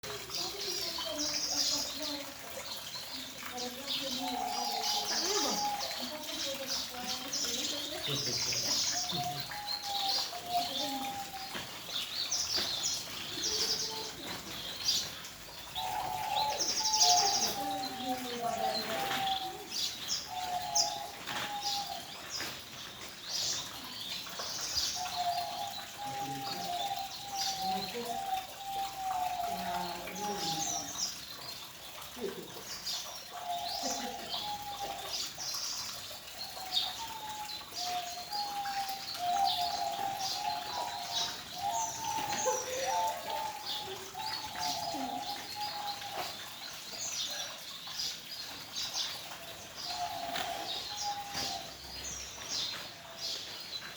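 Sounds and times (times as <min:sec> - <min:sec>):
birds chirping and calling: 0:00.0 - 0:53.9.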